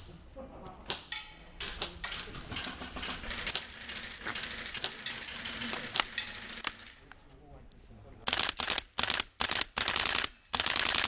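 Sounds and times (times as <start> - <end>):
airsoft guns firing: 8.3 - 11.0.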